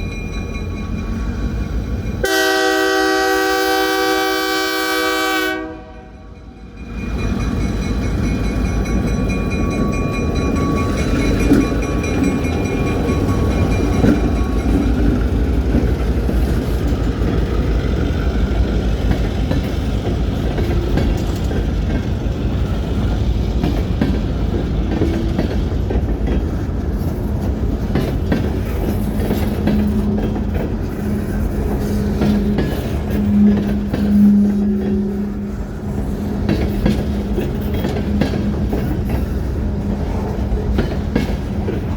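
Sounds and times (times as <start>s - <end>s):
freight train rumble: 0.0s - 41.9s
train horn: 2.2s - 6.4s, 31.8s - 35.9s.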